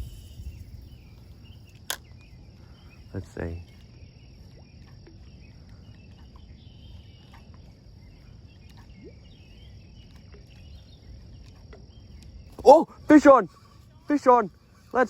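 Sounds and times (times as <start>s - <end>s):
low rumble: 0.0s - 1.6s
crickets trilling: 0.0s - 15.0s.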